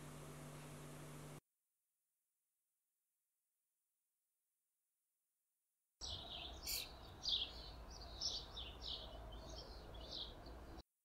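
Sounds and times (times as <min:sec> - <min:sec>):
birds chirping: 0:06.0 - 0:10.8.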